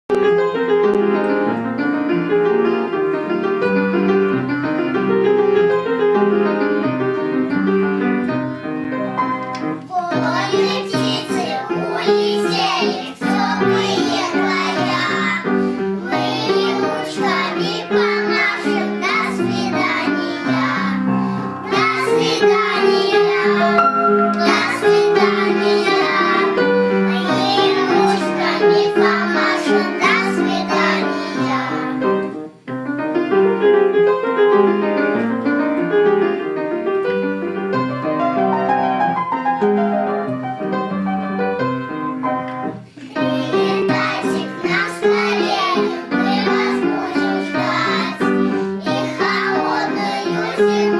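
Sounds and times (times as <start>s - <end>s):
piano accompaniment: 0.1s - 50.9s
children's choir singing: 9.1s - 32.5s, 42.8s - 50.9s.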